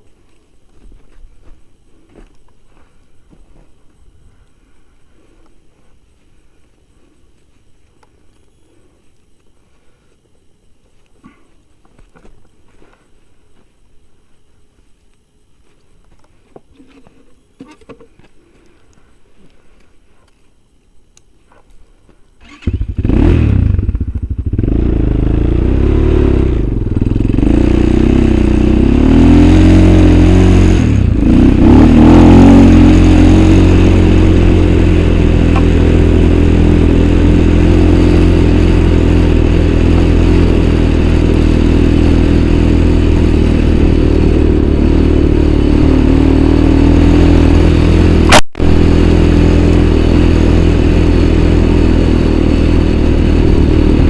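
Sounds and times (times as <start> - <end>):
small engine starting and idling: 22.4 - 54.0.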